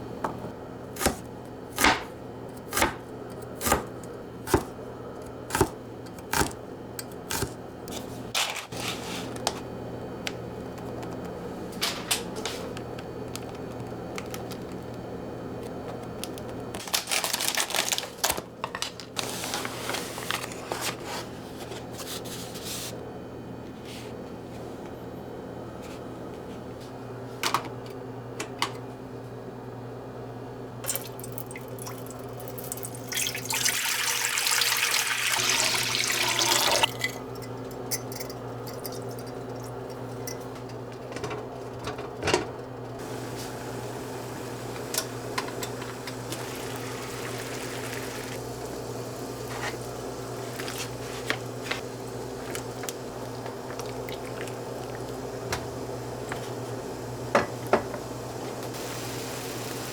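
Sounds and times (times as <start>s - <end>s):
kitchen tap running: 30.8s - 40.4s, 43.0s - 59.9s.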